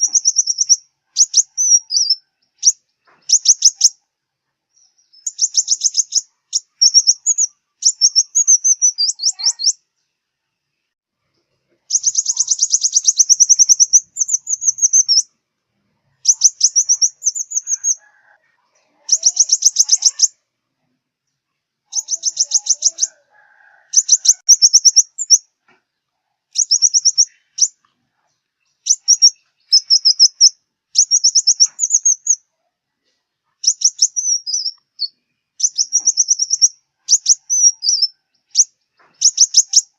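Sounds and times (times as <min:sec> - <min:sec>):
sunbird high trilling song: 0:00.0 - 0:04.0, 0:04.7 - 0:09.9, 0:11.9 - 0:15.3, 0:16.2 - 0:18.2, 0:19.0 - 0:20.4, 0:21.9 - 0:23.2, 0:23.9 - 0:25.5, 0:26.5 - 0:27.8, 0:28.6 - 0:32.5, 0:33.6 - 0:39.9.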